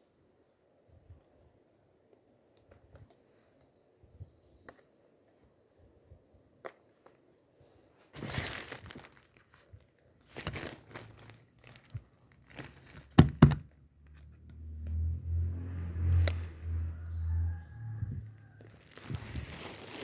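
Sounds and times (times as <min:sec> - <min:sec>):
rustling crinkling handling noises: 0:07.0 - 0:13.8, 0:18.2 - 0:20.0
loud knocks: 0:13.2 - 0:13.7.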